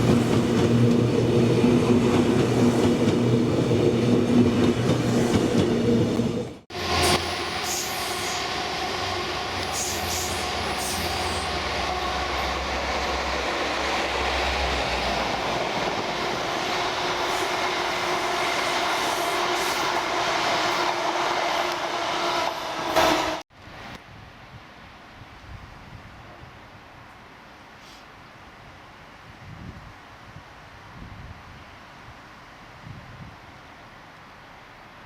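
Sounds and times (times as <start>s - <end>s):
train rumbling on rails: 0.0s - 23.9s
wind-like hiss: 7.0s - 16.3s, 23.6s - 35.0s.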